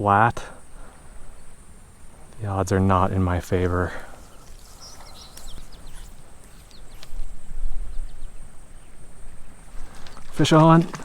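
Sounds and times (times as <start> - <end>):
bird chirps: 0.0 - 10.8
light clicks: 4.2 - 7.3.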